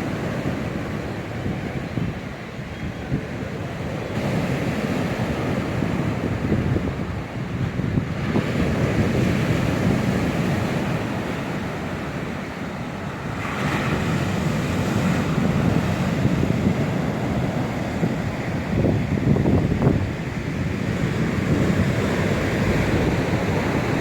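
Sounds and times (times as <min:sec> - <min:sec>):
surf breaking on shore: 0:00.0 - 0:24.0
wind buffeting microphone: 0:00.0 - 0:24.0.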